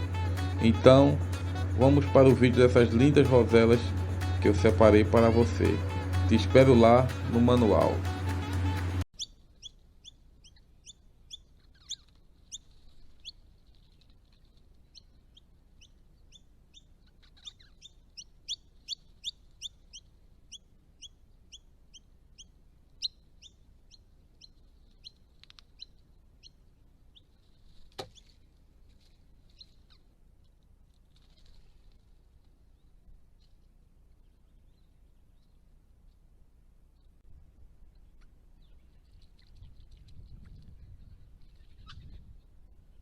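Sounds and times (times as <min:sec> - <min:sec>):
parrots chirping: 0:09.2 - 0:13.3, 0:15.0 - 0:20.0.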